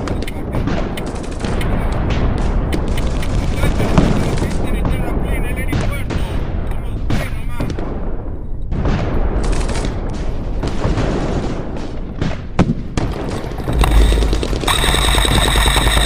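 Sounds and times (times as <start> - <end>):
airsoft guns firing: 8.8 - 16.0.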